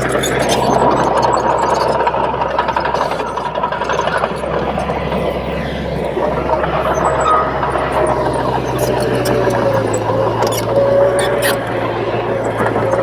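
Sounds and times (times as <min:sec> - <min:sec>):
bulldozer diesel engine running: 0:00.0 - 0:13.0.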